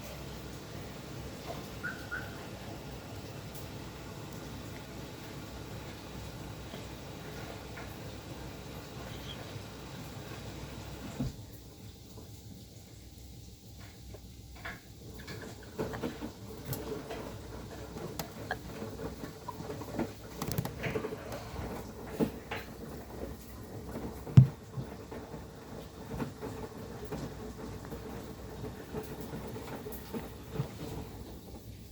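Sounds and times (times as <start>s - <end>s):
washing machine humming: 0.0s - 31.9s
washing machine knocks and rattles: 14.6s - 31.7s.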